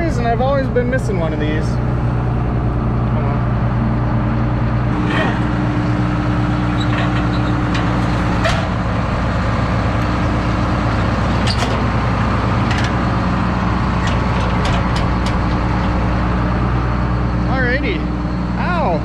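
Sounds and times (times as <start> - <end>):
engine idling: 0.0 - 19.0
clicks and knocks on metal: 6.6 - 9.2, 11.4 - 12.0, 12.6 - 13.1, 14.0 - 16.0.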